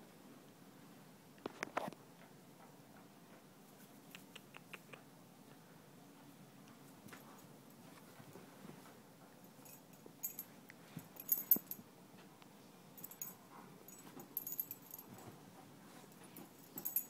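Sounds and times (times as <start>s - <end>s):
collar tags jingling: 9.4s - 11.9s, 13.0s - 17.0s.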